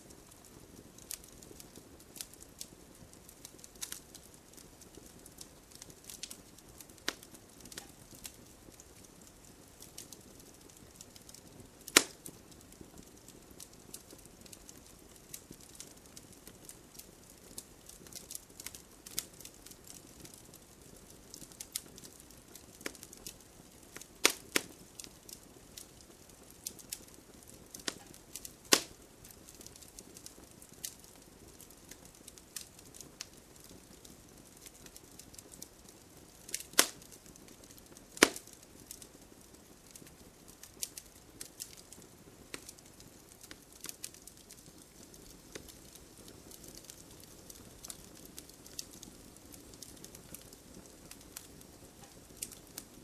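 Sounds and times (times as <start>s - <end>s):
campfire crackling and popping: 0.0s - 53.0s
faint fire hiss: 0.0s - 53.0s.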